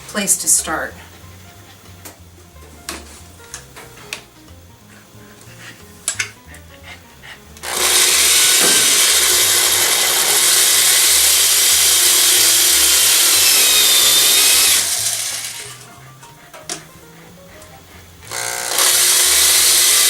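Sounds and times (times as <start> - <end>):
electric drill boring: 7.6 - 15.8, 18.2 - 20.0.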